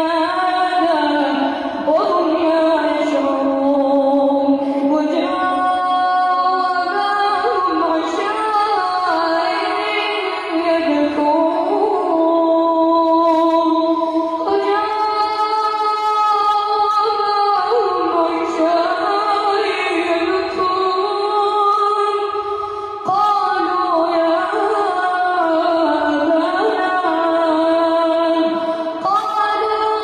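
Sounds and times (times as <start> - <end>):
man chanting recitation: 13.2 - 13.8.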